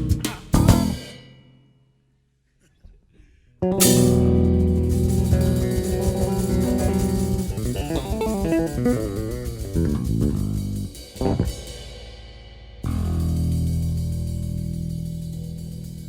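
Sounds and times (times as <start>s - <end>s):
electric bass playing: 0.0s - 1.0s, 3.6s - 11.9s, 12.8s - 16.0s
percussion: 0.0s - 1.2s, 3.8s - 16.0s.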